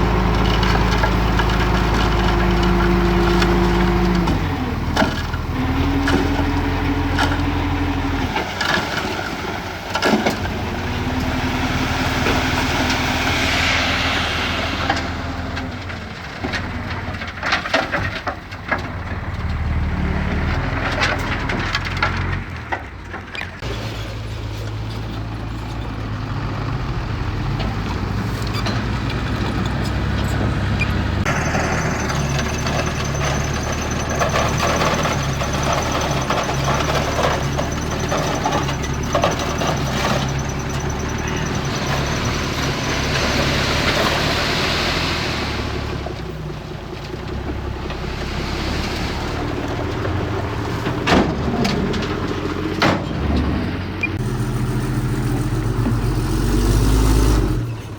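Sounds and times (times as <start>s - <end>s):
heavy diesel engines running: 0.0s - 57.9s
scraping and clatter: 31.2s - 46.3s.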